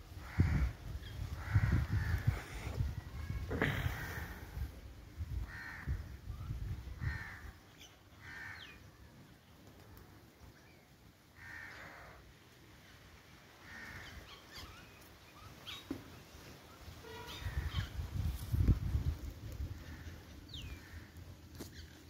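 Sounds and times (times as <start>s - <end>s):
low wind rumble on microphone: 0.0s - 7.6s, 17.3s - 21.1s
birds calling: 13.7s - 16.3s.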